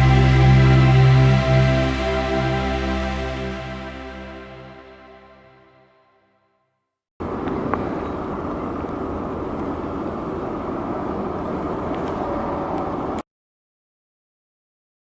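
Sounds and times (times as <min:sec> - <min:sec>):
jet engines roaring: 0:07.2 - 0:13.2.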